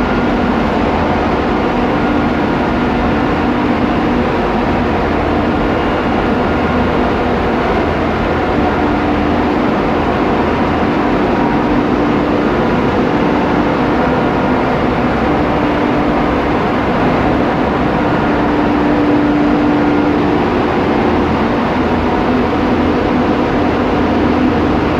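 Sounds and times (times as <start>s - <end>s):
ship engine-room machinery droning: 0.0s - 24.9s.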